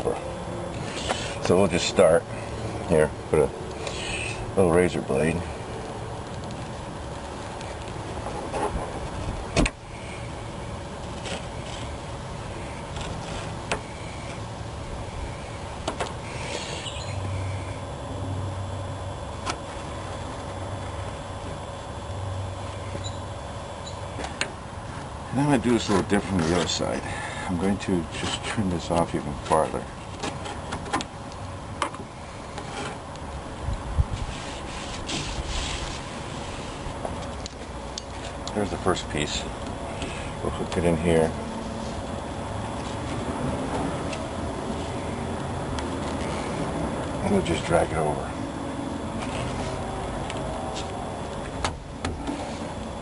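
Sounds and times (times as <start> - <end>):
steady low rumble: 0.0 - 30.2, 31.0 - 34.5, 35.3 - 53.0.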